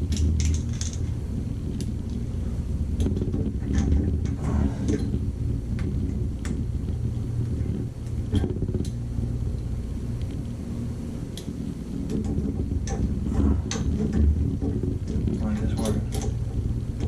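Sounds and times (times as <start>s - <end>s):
low hum: 0.0s - 17.0s
tools clicking and knocking: 0.1s - 1.1s, 13.7s - 16.5s.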